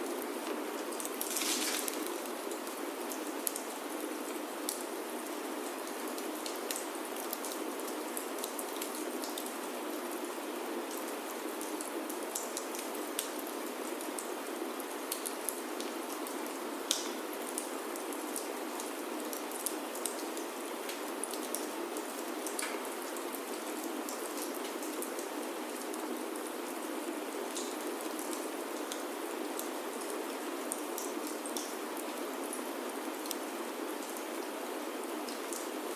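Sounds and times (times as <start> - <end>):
rain on a wooden roof: 0.0 - 35.9
wood fire crackling and popping: 0.8 - 2.7.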